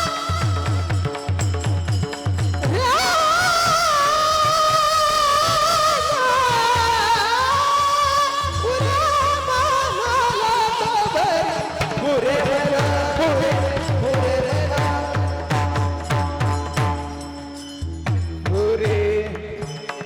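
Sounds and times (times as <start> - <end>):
low drum beats: 12.8 - 17.3.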